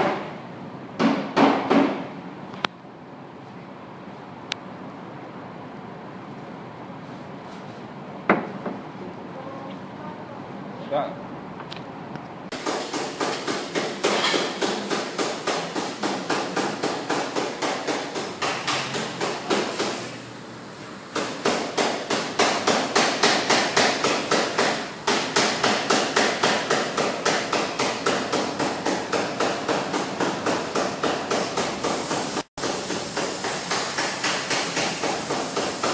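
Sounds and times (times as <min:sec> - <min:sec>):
hammer tapping on car body metal: 0:01.0 - 0:02.1, 0:12.6 - 0:20.0, 0:21.2 - 0:31.8.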